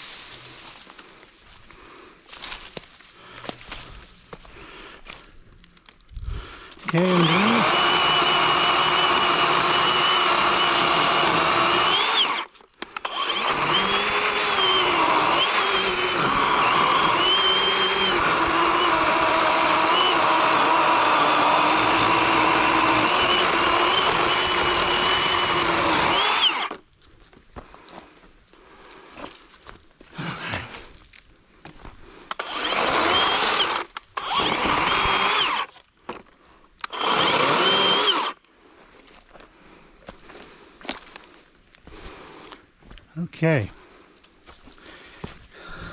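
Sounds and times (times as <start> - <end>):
electric chainsaw cutting wood: 6.8 - 26.8, 32.3 - 35.8, 36.8 - 38.4.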